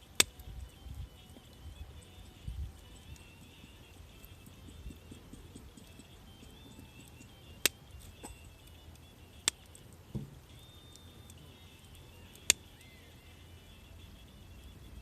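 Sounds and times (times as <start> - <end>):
campfire wood cracking: 0.0 - 15.0
faint steady high tones: 0.0 - 15.0
soft low thump: 10.1 - 10.4.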